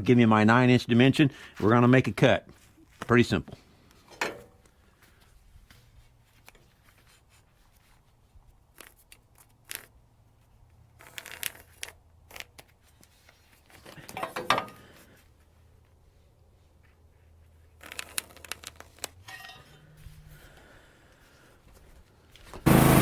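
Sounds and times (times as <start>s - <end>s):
handling clicks scrapes and knocks: 3.9s - 15.2s, 16.8s - 20.3s.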